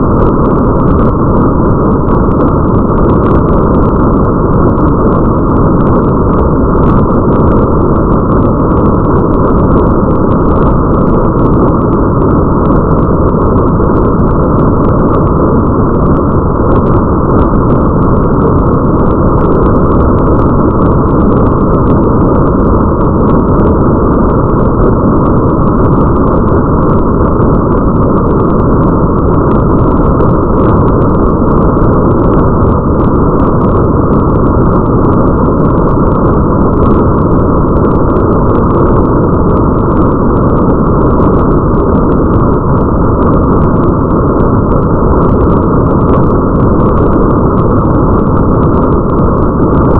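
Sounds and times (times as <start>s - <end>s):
muffled rain hiss: 0.0s - 49.9s.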